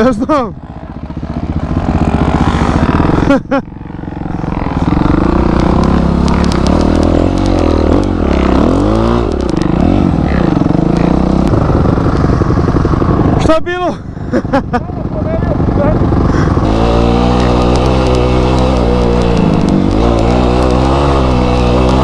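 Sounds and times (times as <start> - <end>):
motorcycle engine revving: 0.0 - 22.0
sharp ticks: 4.6 - 10.0, 10.8 - 13.2, 16.3 - 22.0.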